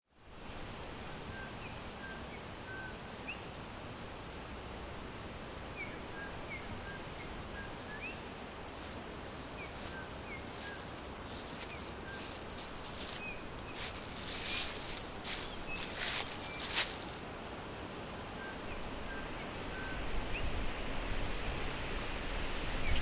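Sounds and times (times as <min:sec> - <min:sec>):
background hiss: 0:00.2 - 0:17.8
small birds chirping: 0:05.7 - 0:17.6.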